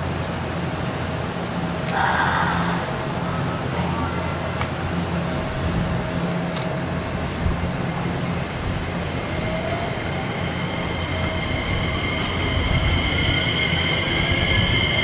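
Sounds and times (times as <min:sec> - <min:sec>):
train rumbling past: 0:00.0 - 0:15.0
train wheel squeal: 0:03.2 - 0:15.0.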